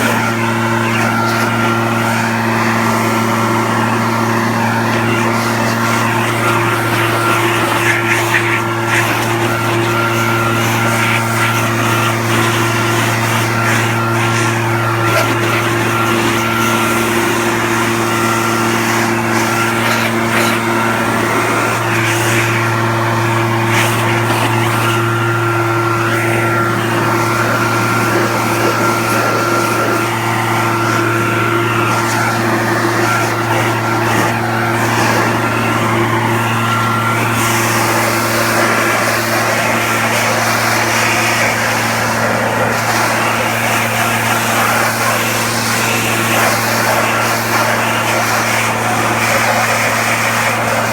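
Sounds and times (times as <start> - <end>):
leaf blower engine running: 0.0 - 50.9.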